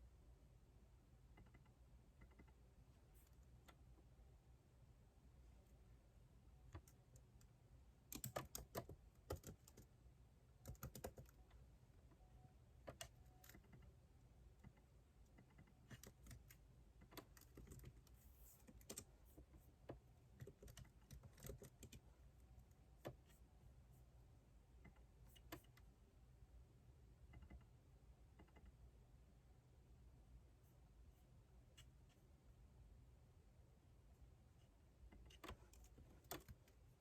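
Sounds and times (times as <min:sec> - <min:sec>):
typing on computer keyboard: 0:01.4 - 0:02.6, 0:08.1 - 0:09.9, 0:10.6 - 0:11.6, 0:12.8 - 0:13.9, 0:14.6 - 0:19.1, 0:20.4 - 0:22.1.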